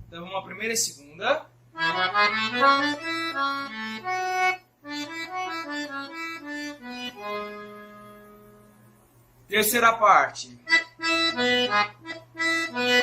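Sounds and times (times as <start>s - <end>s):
accordion melody: 1.7s - 9.1s, 10.6s - 13.0s.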